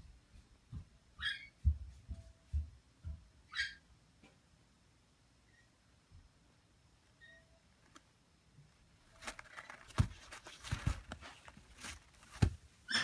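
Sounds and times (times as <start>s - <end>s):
parrot chick scuffs and knocks: 9.1s - 13.0s.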